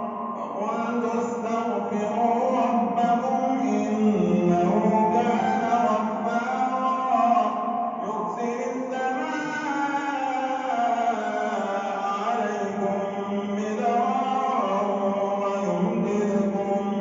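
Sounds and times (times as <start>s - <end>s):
man chanting melodically: 0.0s - 17.0s.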